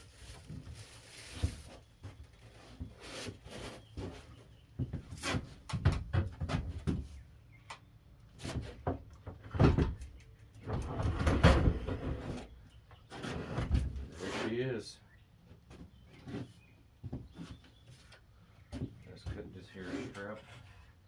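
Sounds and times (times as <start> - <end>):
plastic wrapping rustling: 0.0 - 2.6.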